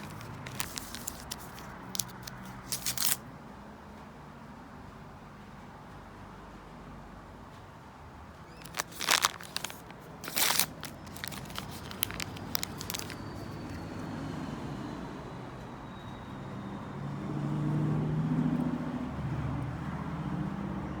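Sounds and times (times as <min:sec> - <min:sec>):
plastic packaging crinkling: 0:00.0 - 0:03.2, 0:08.5 - 0:13.9.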